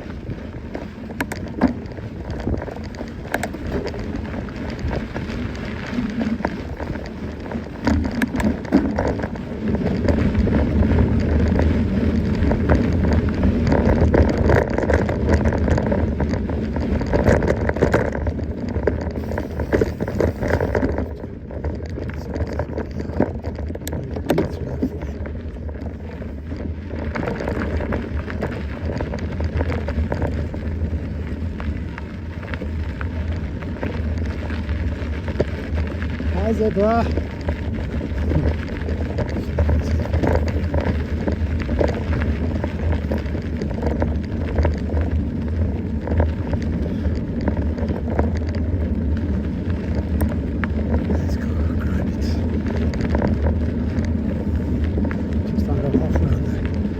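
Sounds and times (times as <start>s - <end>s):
bike rattling and knocking: 0.0s - 56.9s
bike tyres on trail: 0.0s - 56.9s.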